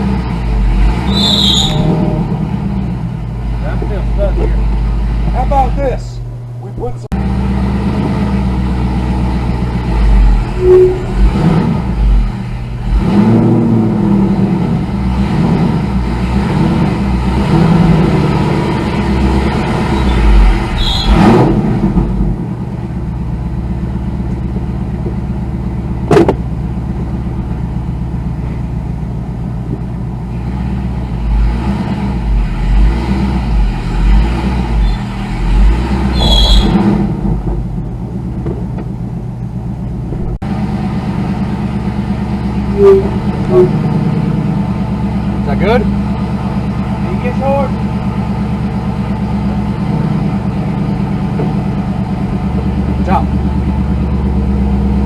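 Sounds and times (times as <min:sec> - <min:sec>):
car engine revving: 0:00.0 - 0:55.0
sharp knocks: 0:26.1 - 0:26.5.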